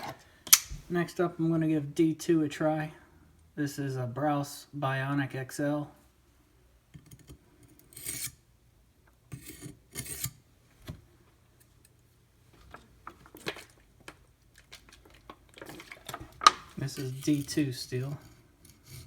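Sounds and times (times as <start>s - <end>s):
knife scraping on sharpening stone: 8.0s - 8.4s.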